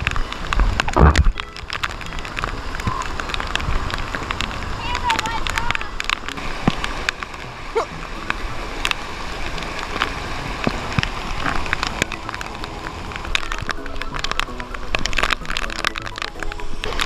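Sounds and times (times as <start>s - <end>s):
water rushing through spillway: 0.0s - 17.0s
sharp clicks and taps: 9.6s - 17.0s.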